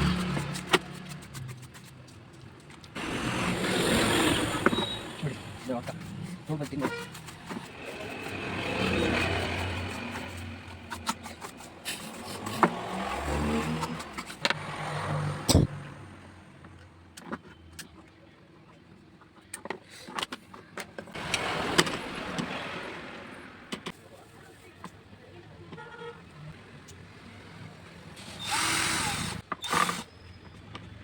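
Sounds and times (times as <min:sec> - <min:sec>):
motor vehicles passing: 0:00.0 - 0:01.4, 0:02.9 - 0:06.6, 0:07.2 - 0:16.8, 0:21.2 - 0:23.8.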